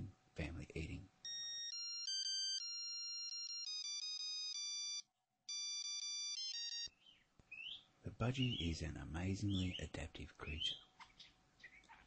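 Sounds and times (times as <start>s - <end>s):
electronic ringtone melody: 1.2s - 7.0s.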